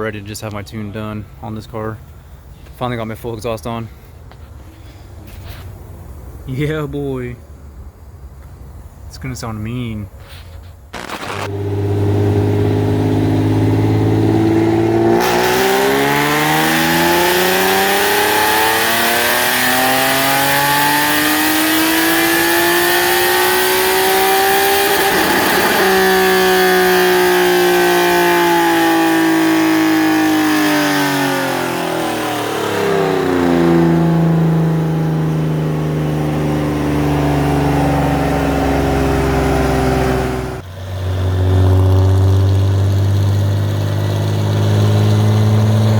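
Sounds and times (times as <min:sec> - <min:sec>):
car engine revving on a dyno: 0:11.0 - 0:45.9.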